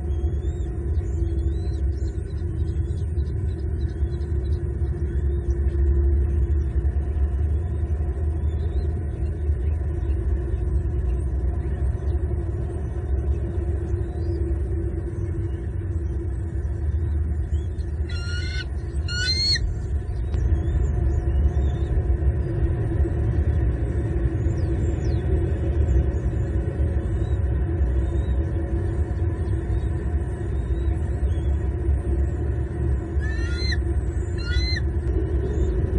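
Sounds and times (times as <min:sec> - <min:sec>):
low rumble: 0:00.0 - 0:35.9
eagle chittering calls: 0:17.5 - 0:19.8, 0:33.1 - 0:35.0.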